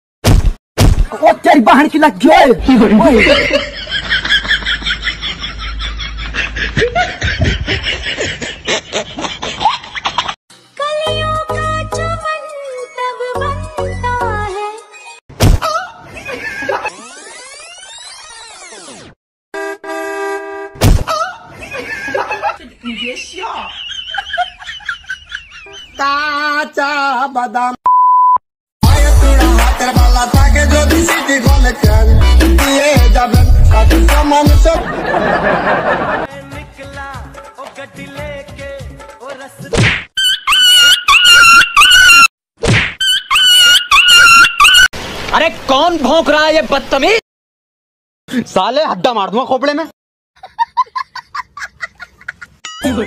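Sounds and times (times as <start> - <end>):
censor beep: 27.9 - 28.4
loud music with heavy beat: 28.8 - 34.9
quick high-pitched laughter: 40.2 - 42.3.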